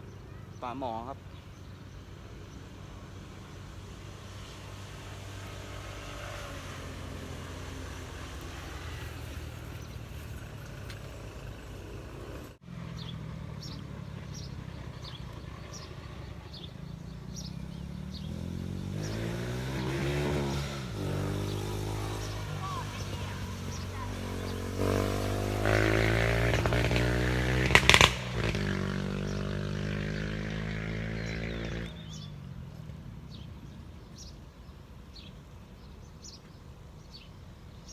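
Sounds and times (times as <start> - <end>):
road traffic hum: 0.0 - 37.9
vehicle passing close: 0.8 - 33.6
bird chirping: 8.4 - 27.0, 31.0 - 37.9.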